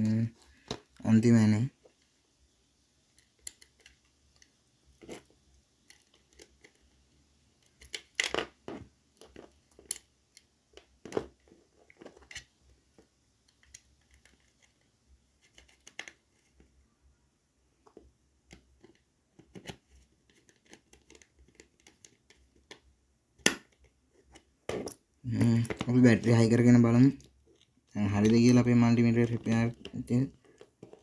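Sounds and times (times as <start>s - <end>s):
plastic parts clicking and rustling: 3.1s - 7.0s, 7.6s - 16.8s, 17.9s - 26.3s, 27.0s - 31.0s.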